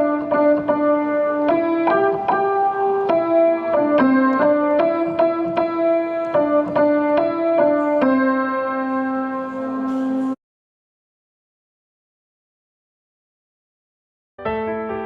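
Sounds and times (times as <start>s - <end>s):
piano melody: 0.0s - 10.4s, 14.4s - 15.0s.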